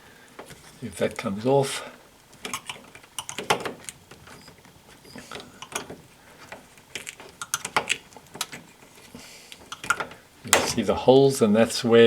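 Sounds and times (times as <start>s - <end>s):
plastic clicks and scrapes: 2.3s - 10.8s.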